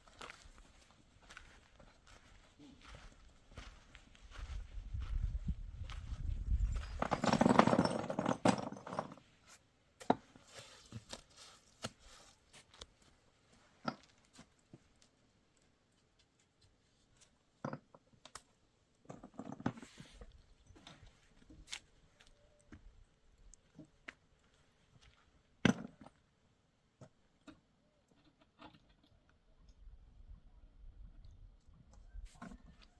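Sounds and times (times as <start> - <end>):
rustling and scraping: 0.1 - 9.6, 10.3 - 14.6.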